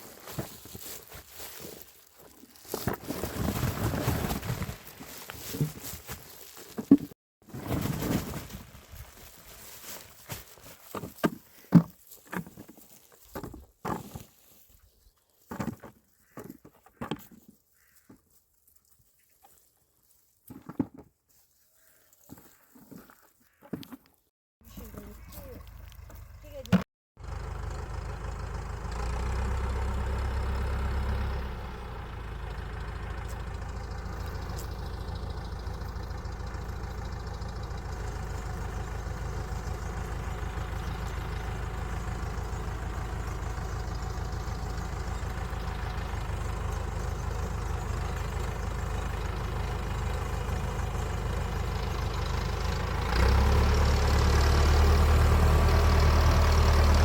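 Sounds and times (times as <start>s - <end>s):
engine idling: 24.6s - 57.0s.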